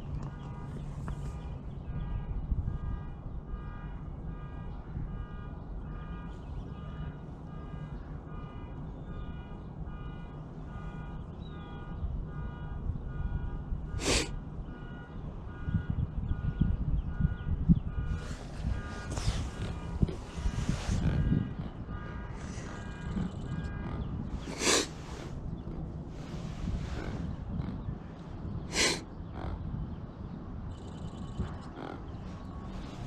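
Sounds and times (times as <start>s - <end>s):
wind on microphone: 0.0s - 7.0s, 9.1s - 33.0s.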